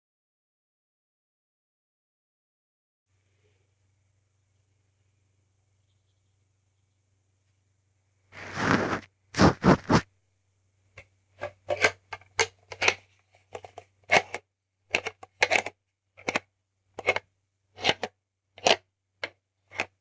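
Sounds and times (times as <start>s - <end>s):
faint low hum: 3.1s - 14.1s.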